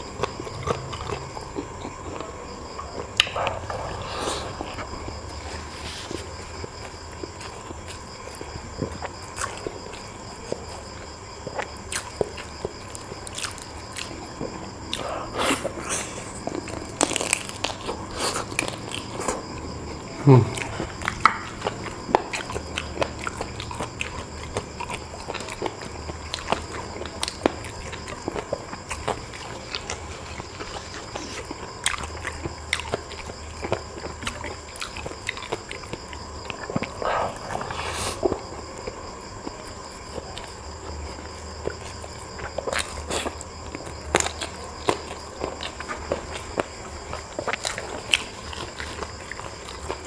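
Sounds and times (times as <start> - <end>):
person chewing food: 0.0 - 50.0.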